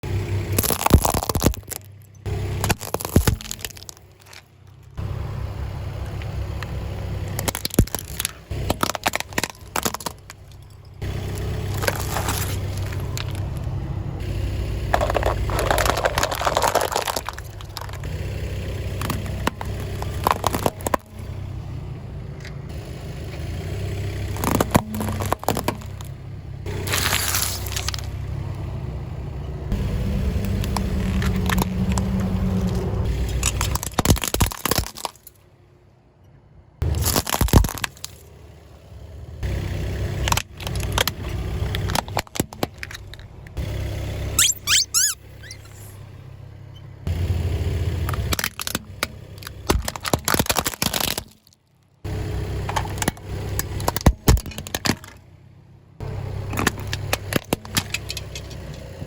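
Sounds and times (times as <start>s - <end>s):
tyre and engine rumble: 0.0s - 59.0s
tyres crushing objects: 0.5s - 5.0s, 7.2s - 13.7s, 14.9s - 18.2s, 18.8s - 21.3s, 24.2s - 28.4s, 30.4s - 35.3s, 36.8s - 38.2s, 48.1s - 51.6s.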